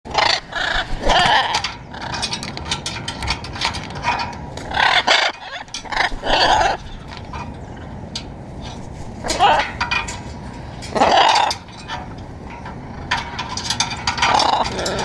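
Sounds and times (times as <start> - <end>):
macaws squawking: 0.1 - 2.2, 4.6 - 7.1, 10.9 - 11.6.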